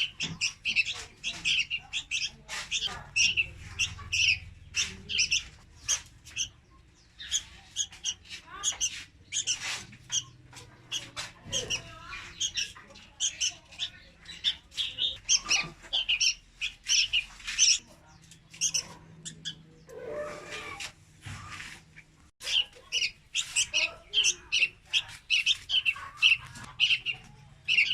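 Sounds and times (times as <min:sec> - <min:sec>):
bulbul chirping: 0:00.0 - 0:19.9
bulbul drawn-out calls: 0:00.0 - 0:21.8, 0:22.4 - 0:27.9.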